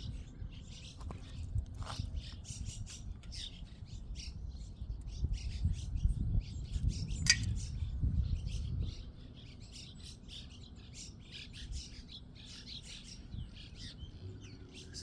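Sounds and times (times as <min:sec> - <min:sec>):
sharp click: 0:07.2 - 0:07.6.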